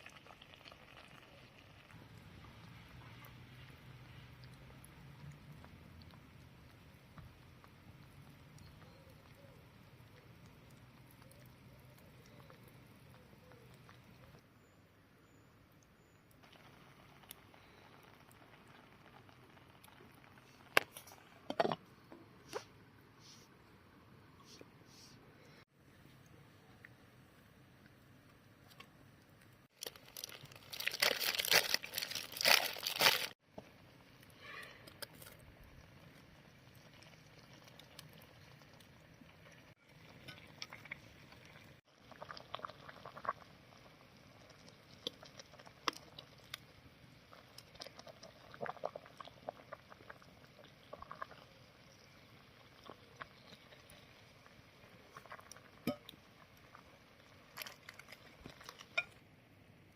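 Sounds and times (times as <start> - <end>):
loud crinkling crackling: 29.7 - 33.4.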